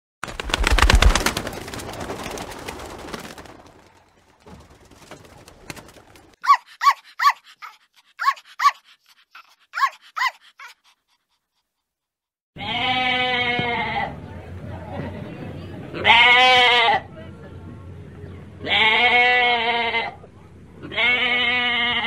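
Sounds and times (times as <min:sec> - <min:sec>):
pigeon wings flapping: 0:00.2 - 0:06.4
small dog yapping: 0:06.4 - 0:11.0
sheep bleating: 0:12.6 - 0:14.1, 0:20.8 - 0:22.0.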